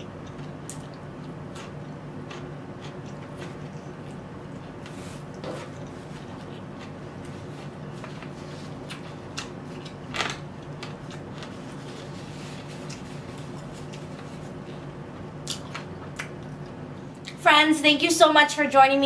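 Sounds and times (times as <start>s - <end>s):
person chewing food: 0.0s - 16.8s
steady low hum: 0.0s - 19.0s
paper napkin rustling: 11.4s - 14.8s.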